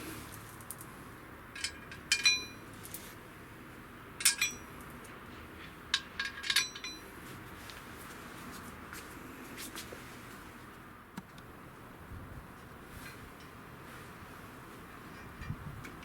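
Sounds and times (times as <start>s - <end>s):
metal parts clinking: 1.6s - 3.1s, 4.2s - 4.9s, 5.9s - 7.0s.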